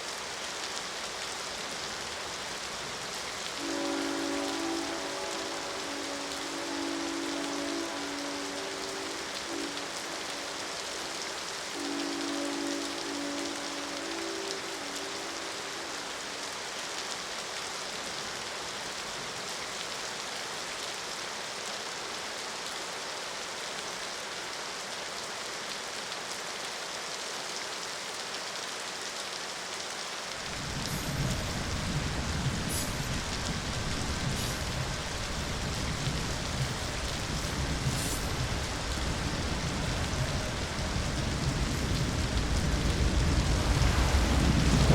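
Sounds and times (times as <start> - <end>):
steady rain falling: 0.0 - 44.9
deep low rumble: 30.6 - 44.9
steady low tones: 35.6 - 44.9.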